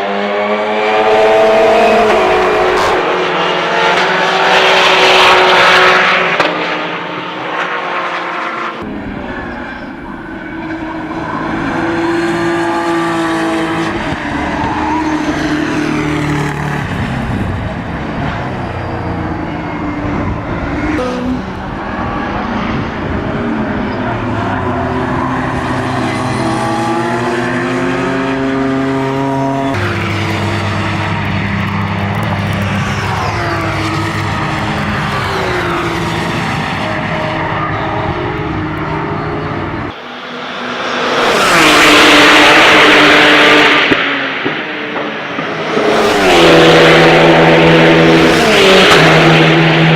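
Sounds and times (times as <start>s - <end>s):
car passing at full throttle: 0.0s - 49.9s
race car engines at high revs: 0.0s - 49.9s.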